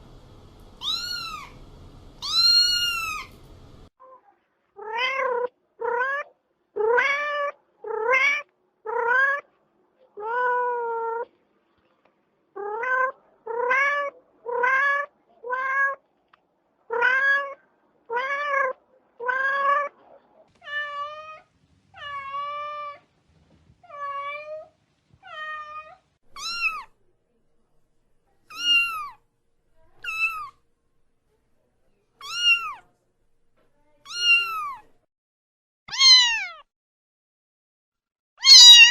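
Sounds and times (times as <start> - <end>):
cats meowing: 0.8 - 1.6, 2.2 - 3.4, 4.8 - 9.4, 12.6 - 16.0, 16.9 - 19.9, 20.6 - 23.0, 25.2 - 27.0, 28.5 - 29.2, 29.9 - 30.6, 32.2 - 32.8, 34.1 - 35.0, 35.9 - 36.6, 38.4 - 38.9.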